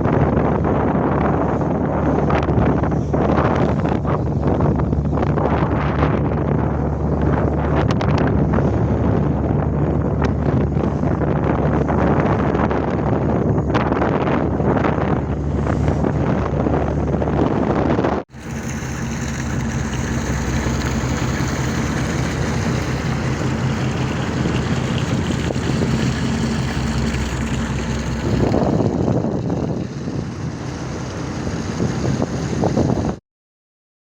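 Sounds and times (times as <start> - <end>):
boat engine droning: 0.0 - 33.2
water noise: 0.0 - 33.2
wind: 0.0 - 33.2
gusts of rushing noise: 18.3 - 33.2.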